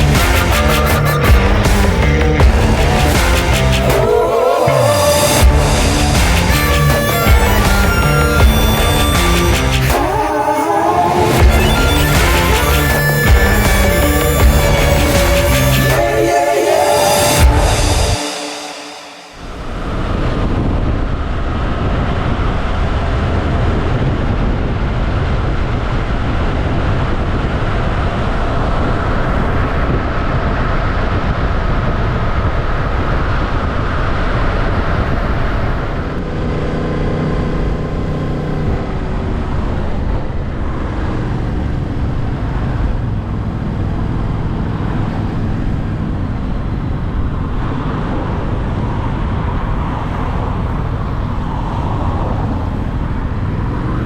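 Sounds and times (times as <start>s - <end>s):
motorcycle engine running: 5.4s - 9.9s
wind rush on microphone: 19.4s - 54.0s.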